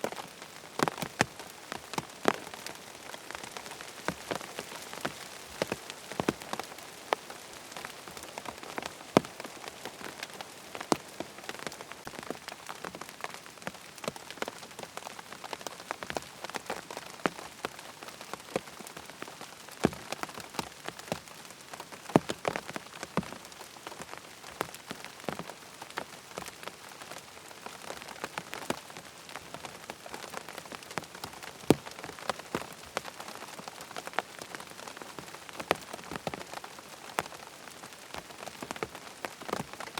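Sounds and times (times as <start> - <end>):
rain pattering on a tent: 0.0 - 39.9.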